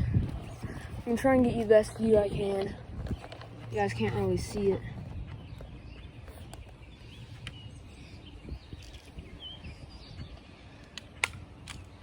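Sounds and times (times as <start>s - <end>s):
low wind rumble: 0.0s - 12.0s
small birds chirping: 0.0s - 12.0s
sharp clicks: 10.8s - 12.0s.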